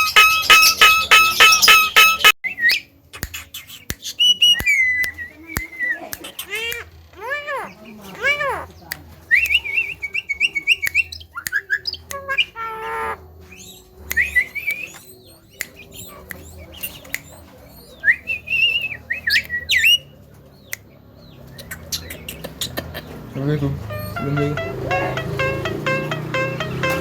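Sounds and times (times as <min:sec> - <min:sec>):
bird singing with whistles and squawks: 0:00.0 - 0:08.8, 0:09.4 - 0:20.1, 0:23.9 - 0:25.7.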